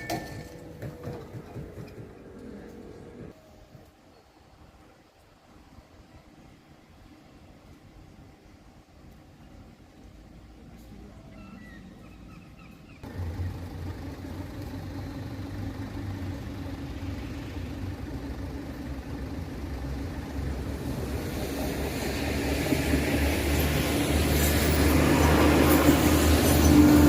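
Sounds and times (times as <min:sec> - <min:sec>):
train wheels on rails: 0:00.0 - 0:04.1, 0:13.1 - 0:27.0
diesel train engine hum: 0:00.0 - 0:12.1, 0:12.8 - 0:27.0.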